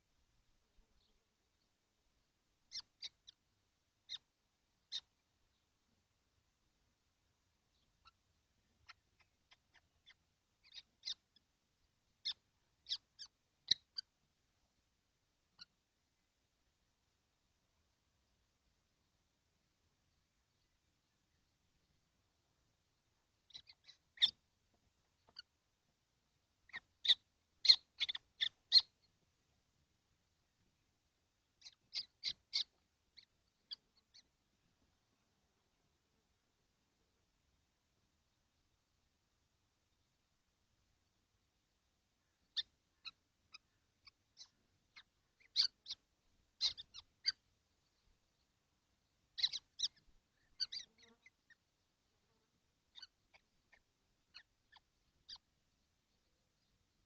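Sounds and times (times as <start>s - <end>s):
kestrels calling: 2.6s - 5.7s, 7.7s - 11.5s, 12.1s - 14.2s, 23.4s - 24.5s, 25.1s - 25.6s, 26.6s - 29.2s, 31.6s - 34.4s, 42.2s - 51.8s, 52.9s - 55.5s.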